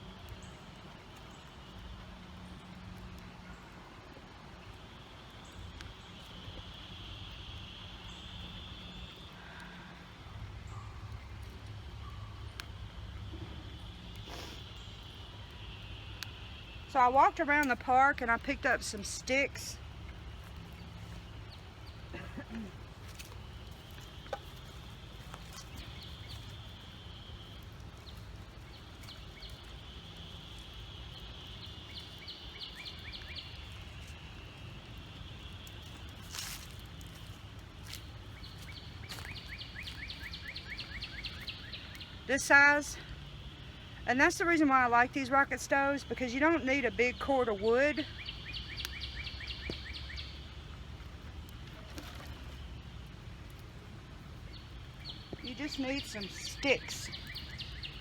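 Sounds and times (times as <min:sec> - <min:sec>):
low outdoor rumble: 0:00.0 - 0:58.0
bird chirps: 0:38.4 - 0:42.2, 0:46.5 - 0:50.5, 0:54.5 - 0:58.0.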